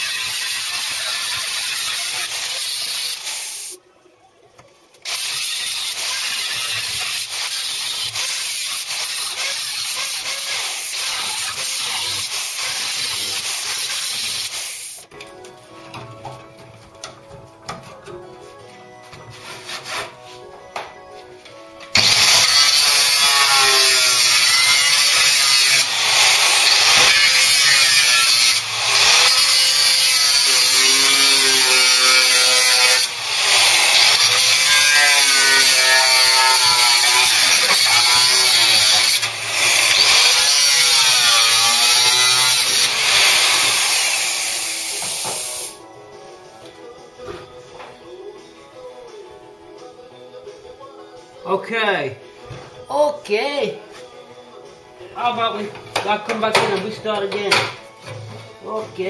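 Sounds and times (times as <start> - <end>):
power tool cutting sheet metal: 0.0 - 3.8, 5.0 - 15.1, 22.0 - 45.8.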